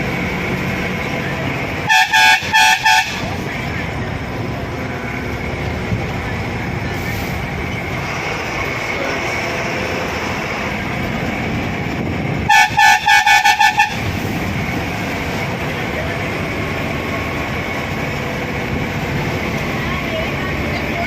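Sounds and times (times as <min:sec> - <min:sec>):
bus engine running: 0:00.0 - 0:21.0
road noise: 0:00.0 - 0:21.0
bus horn short toots: 0:01.9 - 0:03.4, 0:12.5 - 0:14.1.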